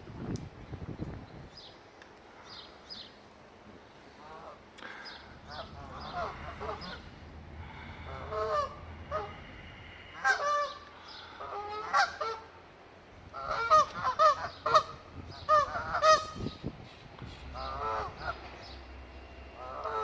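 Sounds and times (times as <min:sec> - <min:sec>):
geese honking: 0:04.1 - 0:12.6, 0:13.3 - 0:16.6, 0:17.5 - 0:18.7, 0:19.5 - 0:20.0.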